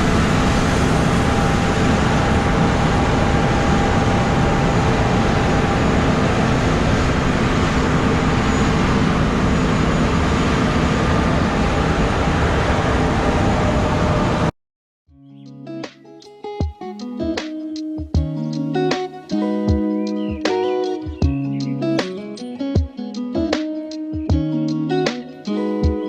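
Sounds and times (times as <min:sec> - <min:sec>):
plucked guitar music: 0:15.1 - 0:26.0.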